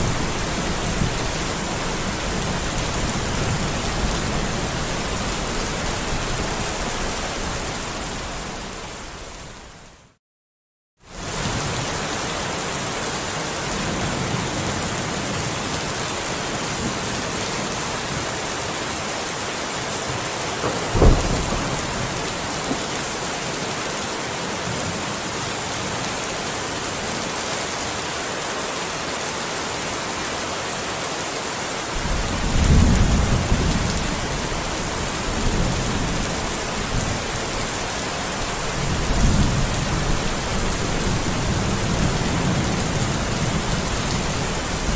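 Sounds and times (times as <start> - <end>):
heavy rain: 0.0 - 10.2, 11.0 - 44.9
sharp thunderclap: 20.6 - 22.9, 32.0 - 36.3
low rolling thunder: 20.6 - 23.0, 32.0 - 44.9.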